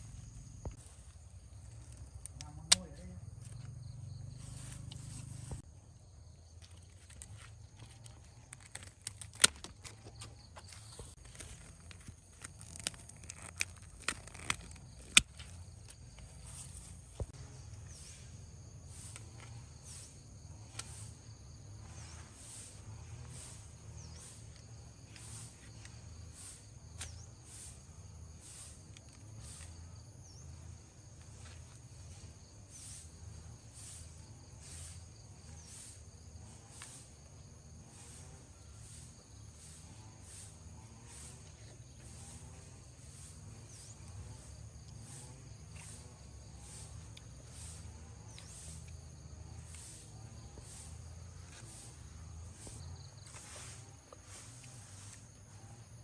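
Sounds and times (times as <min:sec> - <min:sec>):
insects chirping: 0:00.0 - 0:56.0.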